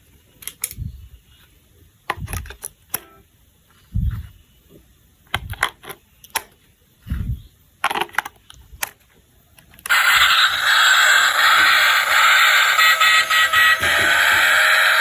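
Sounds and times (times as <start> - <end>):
plastic toy parts clicking: 0.4 - 0.8, 5.3 - 6.6, 7.8 - 14.6
toy train electronic buzzing: 9.9 - 15.0.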